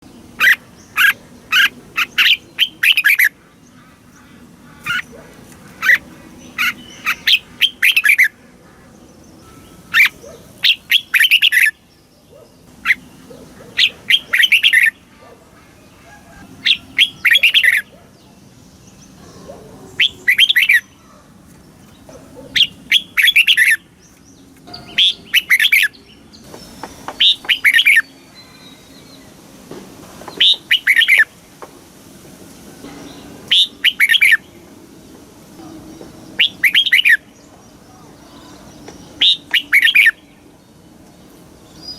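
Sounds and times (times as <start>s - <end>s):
bird singing chirpy whistles: 30.4s - 31.3s, 33.5s - 34.4s, 36.4s - 37.3s, 39.2s - 40.2s.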